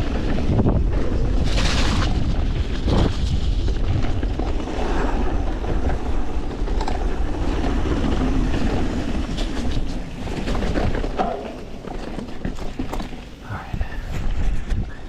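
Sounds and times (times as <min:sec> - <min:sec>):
tyres rumbling over dirt and rock: 0:00.0 - 0:13.4
wind buffeting microphone: 0:00.0 - 0:15.0.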